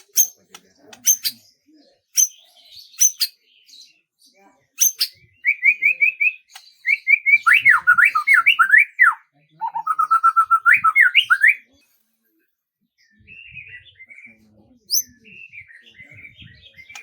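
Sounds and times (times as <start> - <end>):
soft bird twittering: 0.0 - 11.8, 13.0 - 17.0
songbird singing: 0.0 - 12.0, 12.8 - 17.0.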